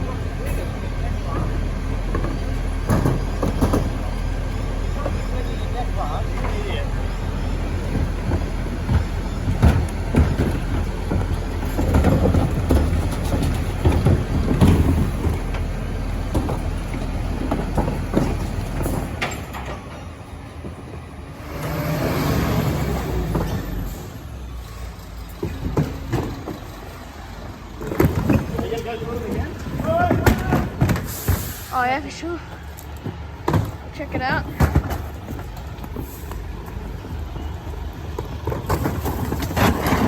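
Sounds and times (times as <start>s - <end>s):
garbage truck engine drone: 0.0s - 40.0s
clanks and knocks: 1.3s - 4.1s, 7.8s - 20.8s, 25.2s - 31.5s.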